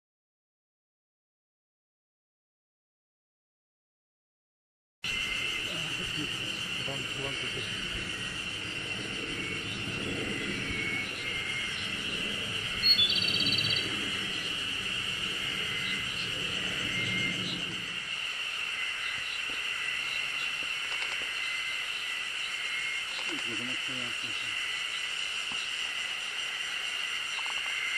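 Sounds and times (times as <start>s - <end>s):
steady high drone: 5.1s - 20.6s
wild birds calling: 5.1s - 27.9s
low rumble: 5.4s - 18.2s
bird trilled call: 12.8s - 14.5s.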